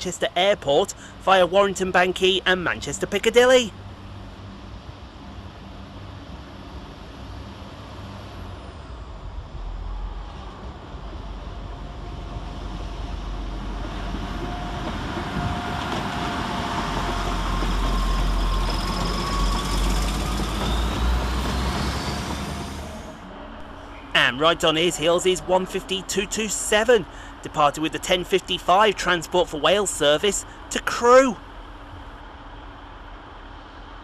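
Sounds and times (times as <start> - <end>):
rising whine: 3.8 - 25.8
train engine pulling away: 3.8 - 30.8.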